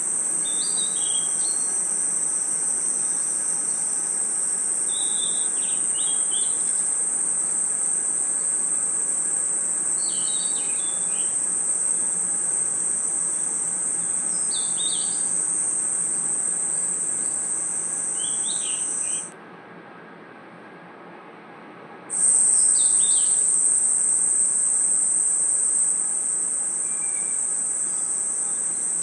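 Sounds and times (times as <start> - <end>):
insects trilling: 0.0 - 19.3, 22.1 - 29.0
short chirping calls: 0.4 - 1.8, 4.9 - 6.8, 9.9 - 19.3, 22.1 - 29.0.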